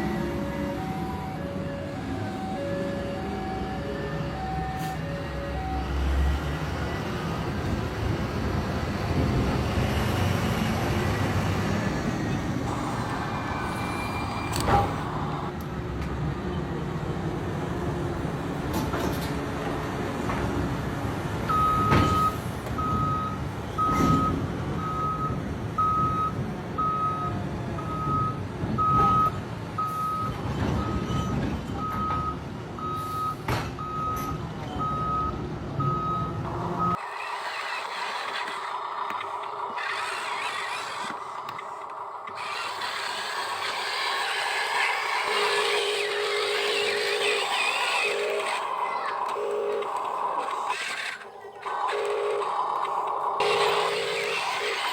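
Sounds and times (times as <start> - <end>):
rumble of motors: 36.1 - 54.9
electronic reversing beeper: 42.3 - 54.9.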